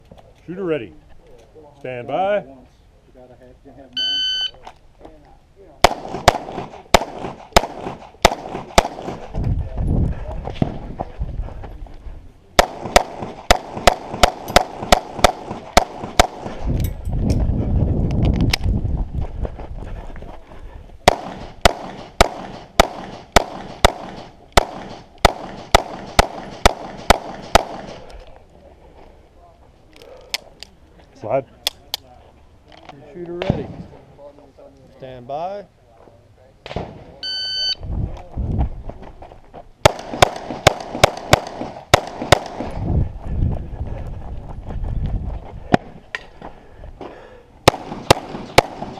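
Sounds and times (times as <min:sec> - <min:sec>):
pistol shots: 0:05.8 - 0:09.3, 0:12.6 - 0:16.6, 0:21.1 - 0:28.0, 0:39.8 - 0:42.8, 0:47.6 - 0:48.9.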